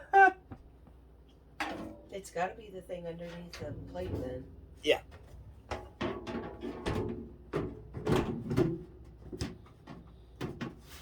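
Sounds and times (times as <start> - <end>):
microwave oven knocking and rattling: 5.5 - 9.8.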